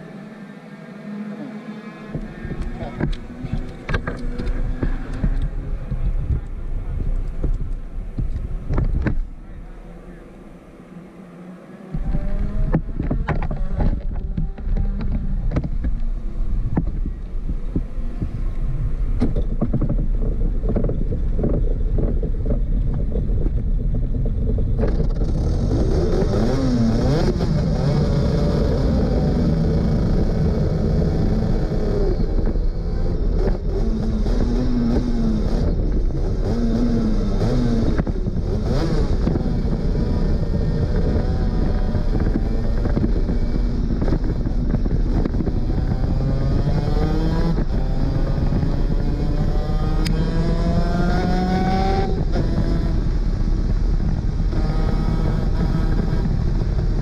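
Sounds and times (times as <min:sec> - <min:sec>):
two-stroke kart engine revving: 0:24.9 - 0:57.0.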